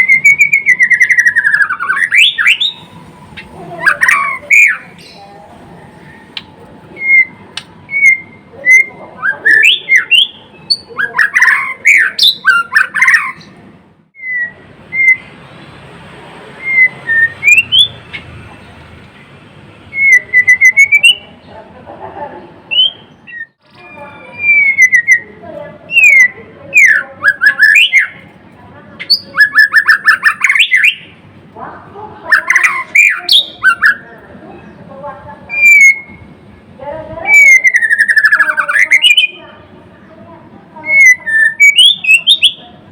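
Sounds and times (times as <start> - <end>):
bird singing whistled notes: 0.0 - 5.2, 5.9 - 13.5, 14.2 - 15.4, 16.6 - 18.2, 19.9 - 21.3, 22.7 - 25.3, 25.9 - 28.2, 29.0 - 31.1, 35.5 - 36.3, 37.3 - 39.4, 40.9 - 42.6.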